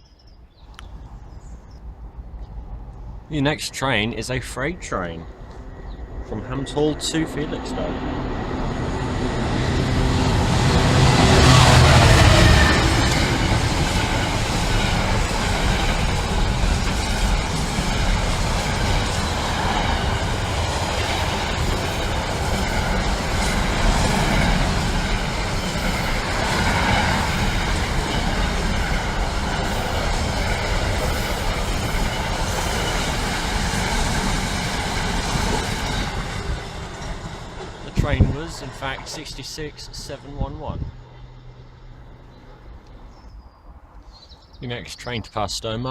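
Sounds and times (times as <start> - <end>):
diesel locomotive engine passing: 0.7 - 44.9
freight wagons clattering over rails: 8.6 - 40.5.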